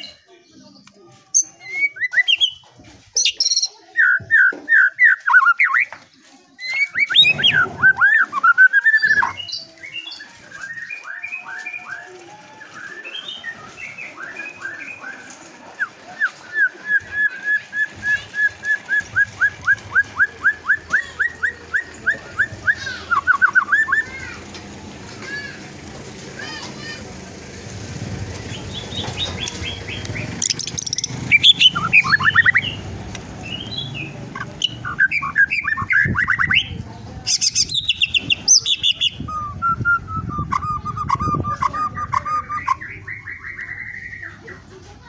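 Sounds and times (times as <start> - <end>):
songbird singing: 3.2 - 24.1, 28.3 - 44.7.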